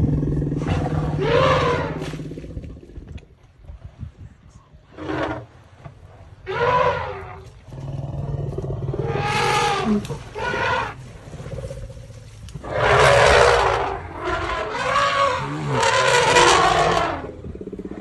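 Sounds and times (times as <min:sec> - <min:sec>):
low rumble: 0:00.0 - 0:04.9, 0:15.3 - 0:18.0.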